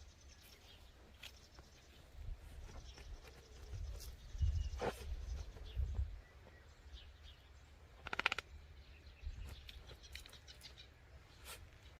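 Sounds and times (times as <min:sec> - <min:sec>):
rapid rattling bird trill: 0:08.0 - 0:08.6.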